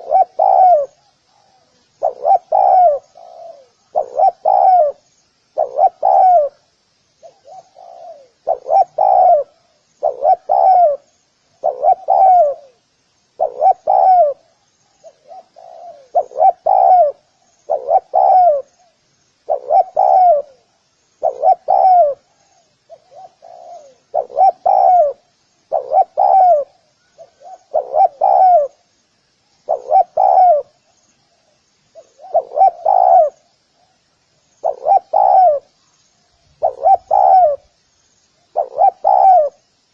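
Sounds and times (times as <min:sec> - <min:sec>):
dove cooing: 0:00.0 - 0:28.8, 0:29.7 - 0:34.0, 0:34.6 - 0:35.8, 0:36.5 - 0:37.7, 0:38.5 - 0:39.6
faint high chirping: 0:00.0 - 0:39.9.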